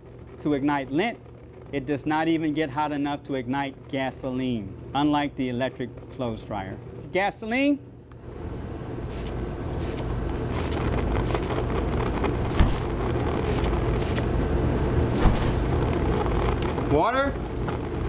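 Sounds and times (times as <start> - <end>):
low mechanical hum: 0.0 - 18.0
hissing spray squirts: 9.1 - 16.8.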